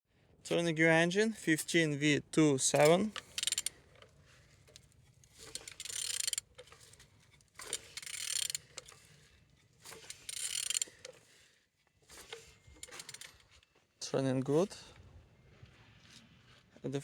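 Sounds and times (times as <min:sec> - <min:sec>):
engine turned over by hand: 0:02.7 - 0:09.2, 0:09.8 - 0:11.3, 0:12.0 - 0:13.5.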